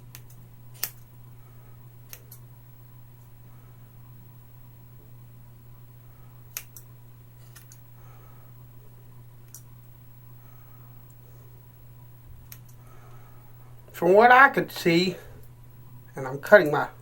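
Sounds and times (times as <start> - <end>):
steady low hum: 0.0 - 17.0
scissors snipping hair: 0.1 - 1.0, 6.5 - 7.8.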